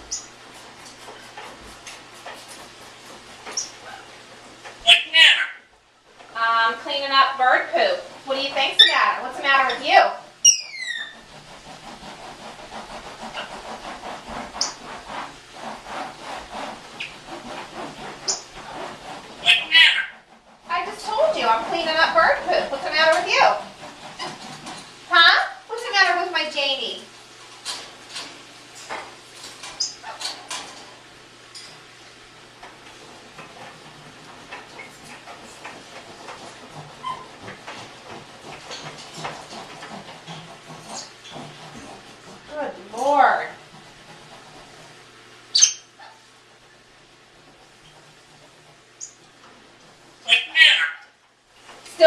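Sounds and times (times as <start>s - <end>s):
parrot chirping: 0.1s - 0.3s, 3.5s - 4.1s, 4.9s - 5.7s, 8.6s - 9.8s, 10.4s - 11.2s, 14.6s - 14.8s, 18.2s - 18.5s, 19.4s - 20.2s, 29.8s - 30.2s, 45.5s - 46.2s, 49.0s - 49.2s, 50.3s - 51.1s
scraping: 6.2s - 26.6s
rhythmic scrubbing strokes: 6.4s - 27.0s
high squeak: 10.4s - 11.2s.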